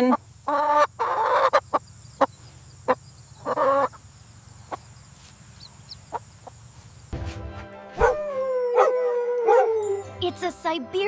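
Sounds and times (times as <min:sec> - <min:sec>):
chicken clucking: 0:00.0 - 0:04.0.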